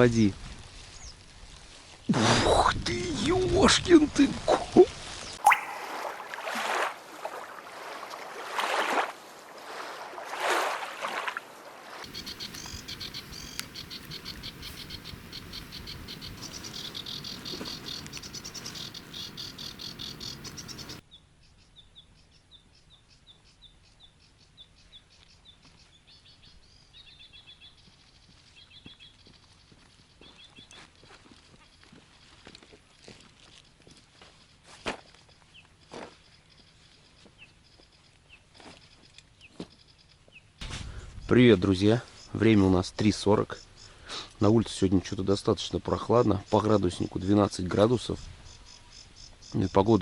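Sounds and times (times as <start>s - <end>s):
insects chirping: 5.4s - 6.8s, 12.0s - 21.0s, 48.1s - 50.0s.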